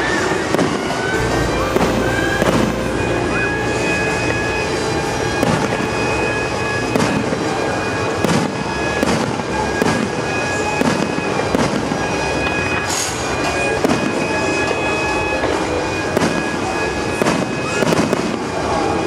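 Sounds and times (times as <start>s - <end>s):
music with long held notes: 0.0s - 9.0s
fireworks shells bursting: 0.0s - 18.6s.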